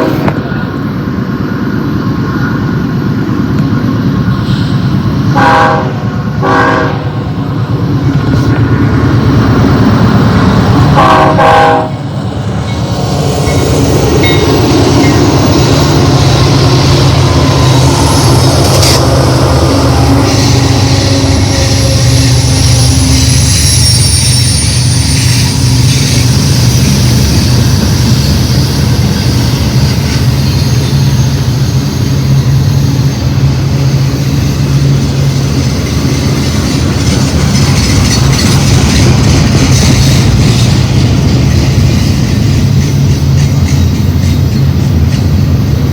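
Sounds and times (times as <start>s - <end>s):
locomotive horn: 0.0s - 0.3s, 5.3s - 7.3s, 10.9s - 12.1s, 18.7s - 23.3s
freight train wheels rumbling on rail: 0.0s - 45.9s
high-pitched wheel squeals: 17.4s - 33.4s.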